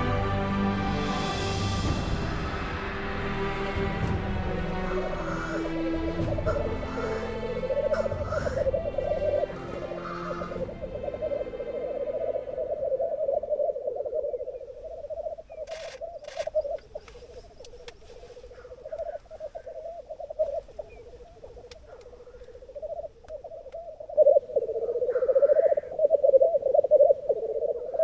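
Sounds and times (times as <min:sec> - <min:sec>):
grouse bubbling chorus: 0:00.0 - 0:15.5.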